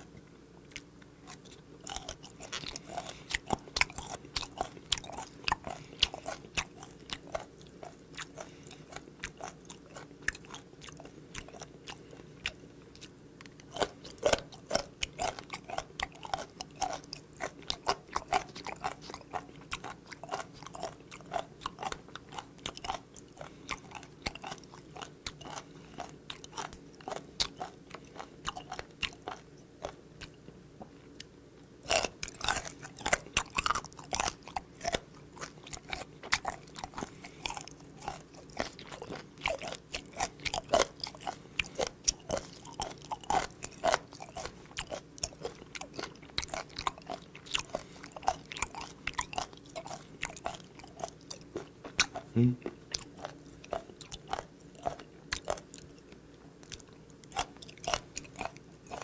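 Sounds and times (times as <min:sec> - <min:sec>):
cartilage crunching in mouth: 0:00.7 - 0:30.4, 0:31.1 - 0:59.0.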